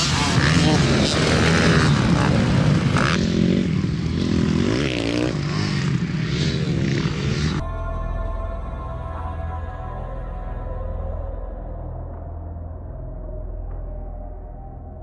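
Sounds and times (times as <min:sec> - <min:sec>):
motocross bike engines running: 0:00.0 - 0:07.6.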